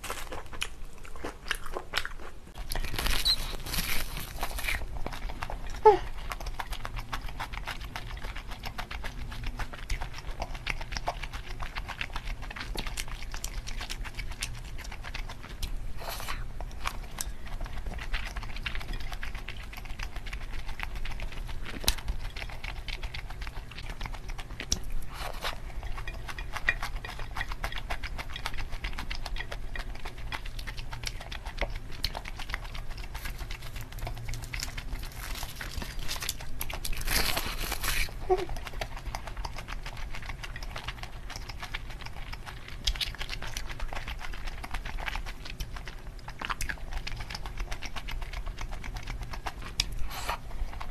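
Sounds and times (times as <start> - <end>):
chewing and mouth clicks: 0.0 - 50.9.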